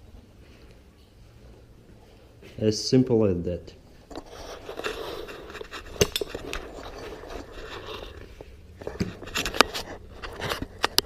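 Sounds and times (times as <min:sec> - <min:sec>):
tools scraping and clicking: 0:04.1 - 0:11.0.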